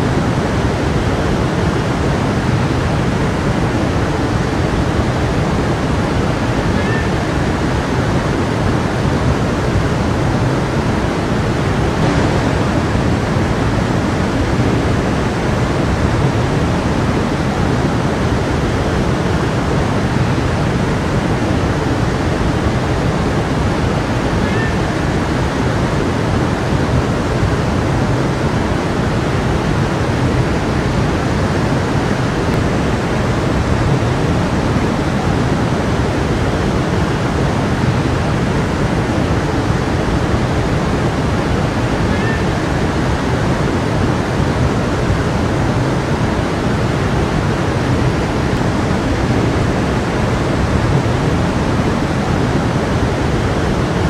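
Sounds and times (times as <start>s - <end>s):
stream of running water: 0.0s - 54.0s.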